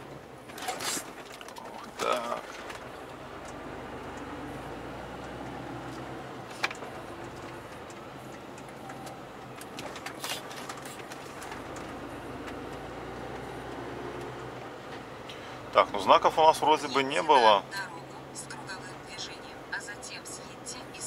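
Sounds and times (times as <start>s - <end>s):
engine and road hum in truck cab: 0.0s - 21.0s.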